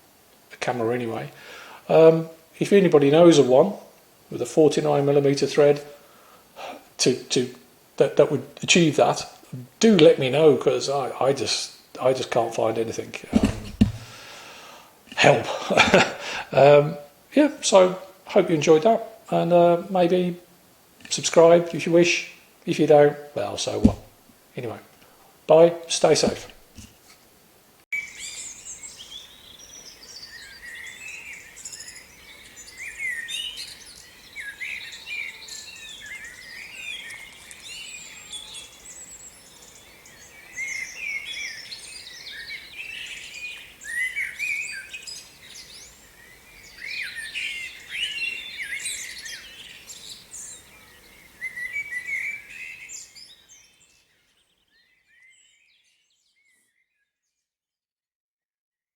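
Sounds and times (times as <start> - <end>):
birds chirping and singing: 28.0 - 57.0.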